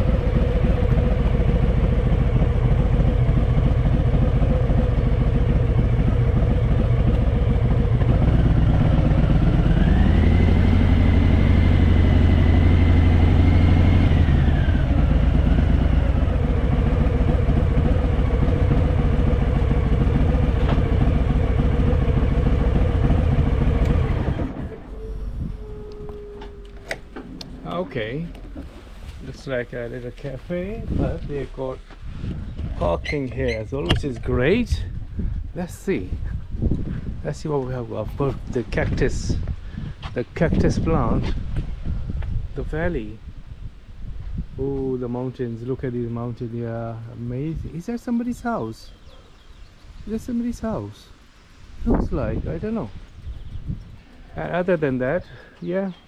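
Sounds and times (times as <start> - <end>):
motorcycle engine revving: 0.0 - 30.4.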